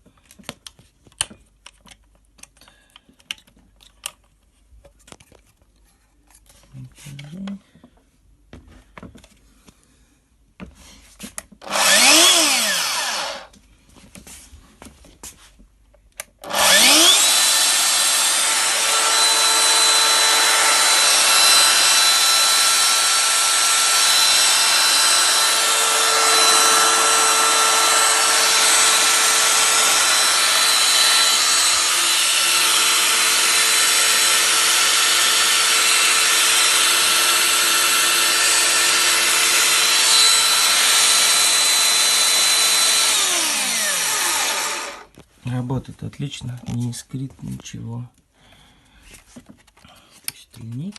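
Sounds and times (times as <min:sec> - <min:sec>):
electric motor spinning: 0:11.6 - 0:13.5, 0:16.5 - 0:45.1.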